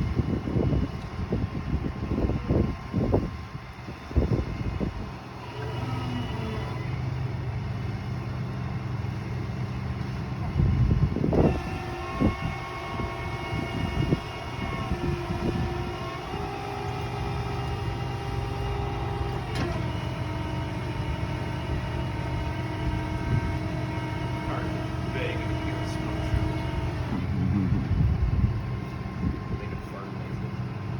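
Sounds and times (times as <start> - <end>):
vehicle engine running: 6.8 - 30.9.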